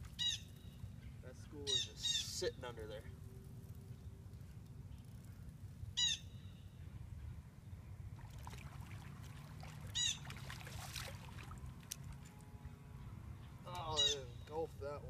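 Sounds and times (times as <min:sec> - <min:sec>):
bird calls: 0:00.0 - 0:08.0, 0:09.4 - 0:10.8, 0:11.9 - 0:14.8
low background hum: 0:00.0 - 0:15.0
faint water splashing: 0:08.1 - 0:12.9.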